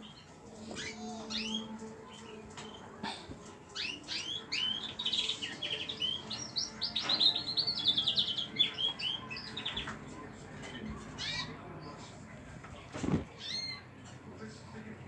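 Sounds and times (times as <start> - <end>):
bird trill: 0.0 - 1.8, 11.2 - 11.6, 13.3 - 13.9
pet birds chirping: 0.0 - 3.0, 3.6 - 14.2.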